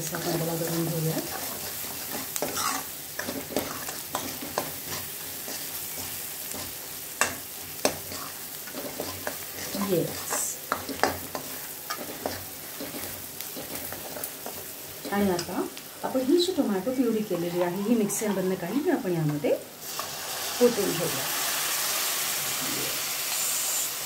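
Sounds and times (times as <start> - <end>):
onions sizzling in a pan: 0.0 - 24.0
metal ladle scraping a pan: 0.3 - 14.6.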